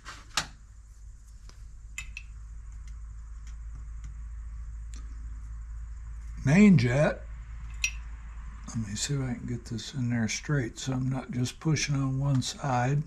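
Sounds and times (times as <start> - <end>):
steady low hum: 0.0 - 13.0
metal parts clicking and tapping: 2.0 - 2.3.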